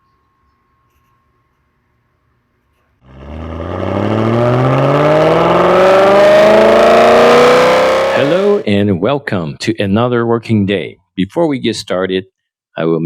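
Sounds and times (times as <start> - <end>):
car engine accelerating: 3.0 - 8.7.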